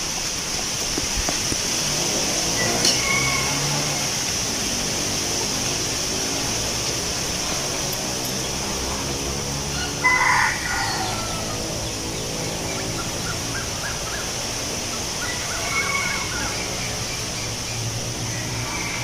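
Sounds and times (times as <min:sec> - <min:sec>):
wind rustling leaves: 0:00.0 - 0:19.0
loud bird call: 0:02.6 - 0:04.2, 0:09.7 - 0:19.0.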